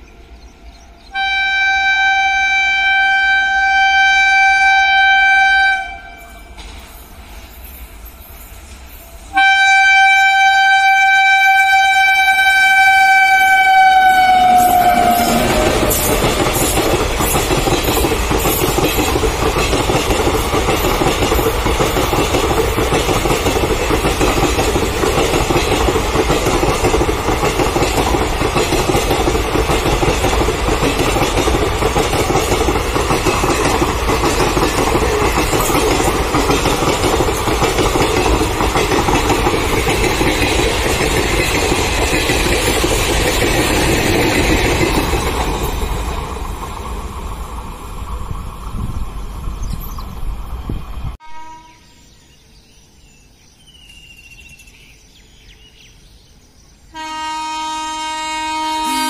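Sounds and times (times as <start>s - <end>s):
locomotive horn blast: 1.1s - 6.6s, 9.3s - 16.1s, 51.2s - 52.0s, 56.9s - 59.0s.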